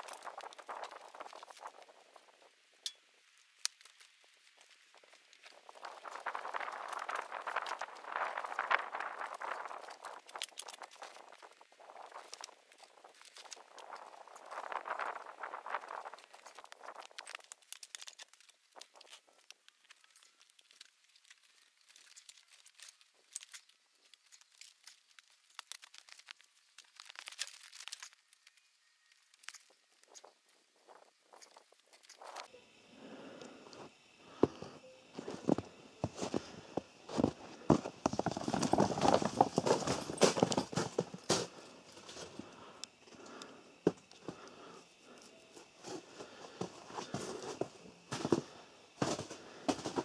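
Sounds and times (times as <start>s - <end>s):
faint crinkling and crackling: 0.0s - 50.0s.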